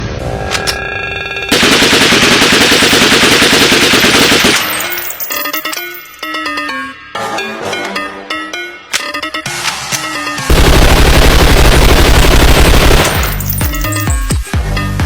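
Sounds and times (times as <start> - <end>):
rapid automatic gunfire: 1.5 - 4.8, 10.5 - 13.5.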